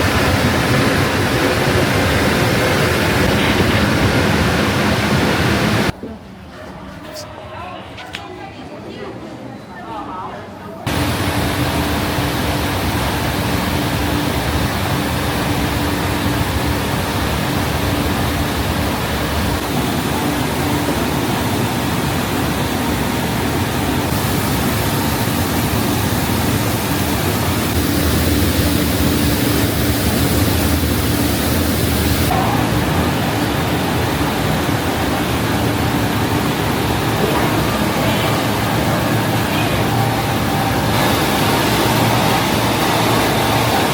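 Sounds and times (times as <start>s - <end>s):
processing machinery rushing hiss: 0.0s - 5.9s, 10.9s - 43.9s
low machine hum: 10.9s - 43.9s.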